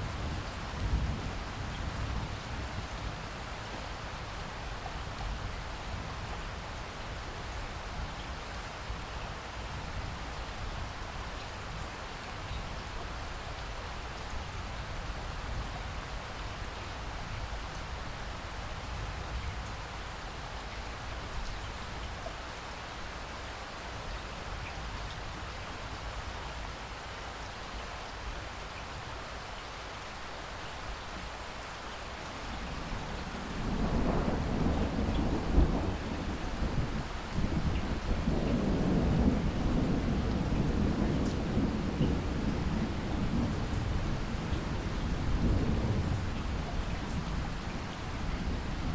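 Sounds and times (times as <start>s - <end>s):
steady rain falling: 0.0s - 48.9s
thunder rumbling: 32.5s - 47.5s.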